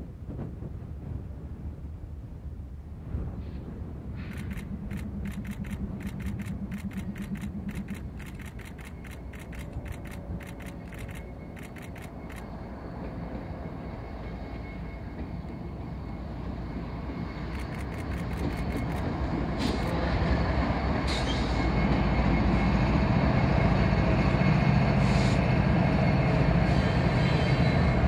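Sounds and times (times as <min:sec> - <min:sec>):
train rumbling past: 0:00.0 - 0:28.0
sharp clicks: 0:04.3 - 0:12.5, 0:17.5 - 0:19.1.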